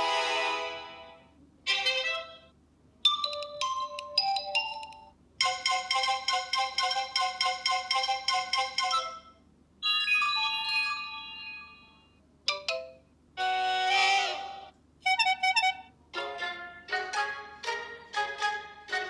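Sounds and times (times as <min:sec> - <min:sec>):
marimba-like ringtone melody: 0:03.1 - 0:14.7
ringing chime run: 0:09.8 - 0:13.0.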